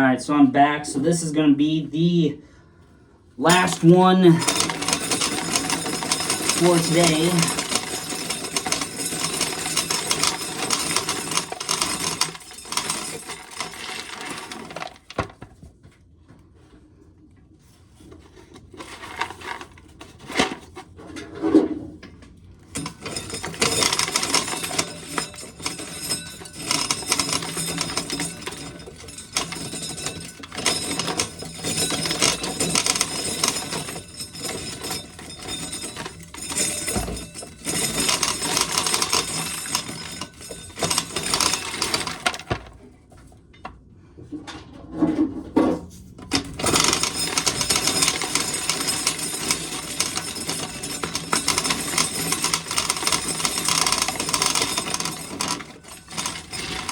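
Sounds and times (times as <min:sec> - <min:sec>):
corn sheller rattling: 0:03.4 - 0:15.6, 0:18.7 - 0:20.9, 0:22.7 - 0:42.8, 0:46.2 - 0:56.9.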